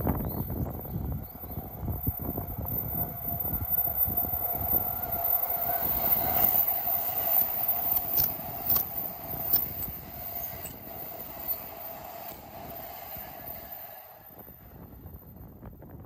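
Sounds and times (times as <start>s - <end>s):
steady whine: 0.0s - 16.0s
train passing rumble: 0.0s - 16.0s
wheel clacks: 2.8s - 14.1s.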